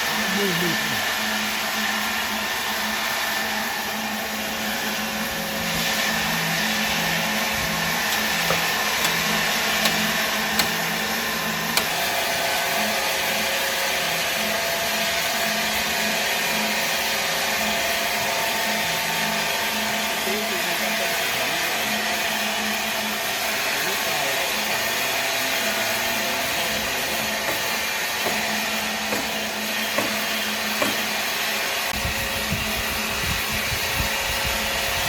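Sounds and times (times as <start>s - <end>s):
machine whirring: 0.0s - 35.0s
sharp clicks: 9.8s - 11.0s.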